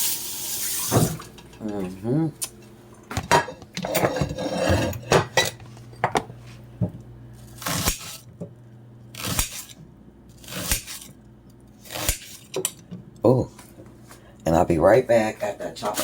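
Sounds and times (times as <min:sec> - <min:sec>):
dishes and utensils clinking: 0:03.1 - 0:06.3.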